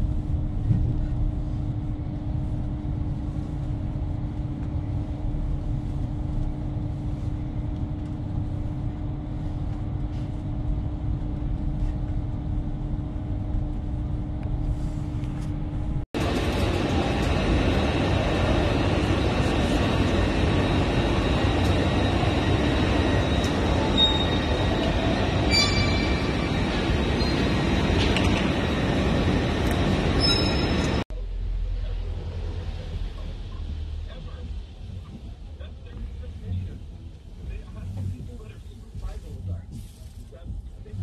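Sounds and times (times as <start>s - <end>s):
train cabin rumble and hum: 0.0s - 41.0s
station platform noise: 15.3s - 39.6s.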